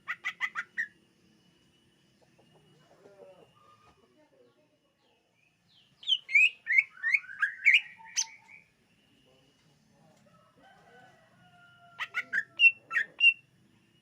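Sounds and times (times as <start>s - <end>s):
bird singing whistled notes: 5.4s - 8.8s.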